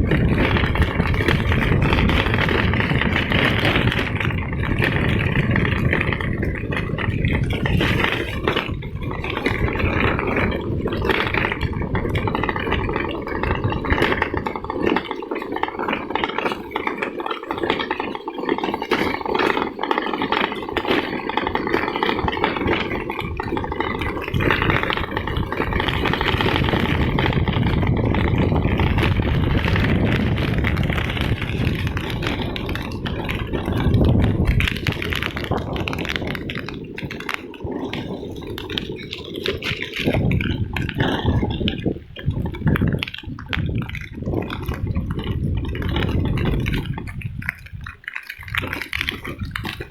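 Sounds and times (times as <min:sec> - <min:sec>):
vehicle rattling and clattering: 0:00.0 - 0:49.9.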